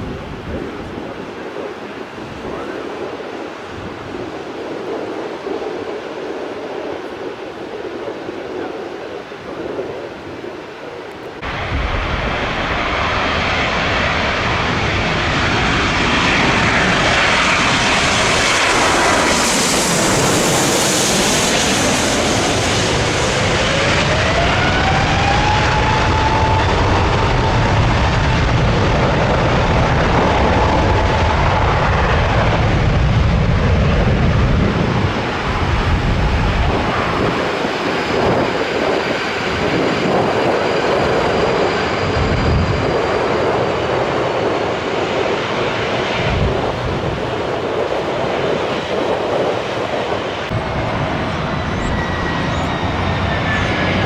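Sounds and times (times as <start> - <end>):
jet airliner passing overhead: 0.0 - 54.0
jet engine whine: 0.0 - 54.0.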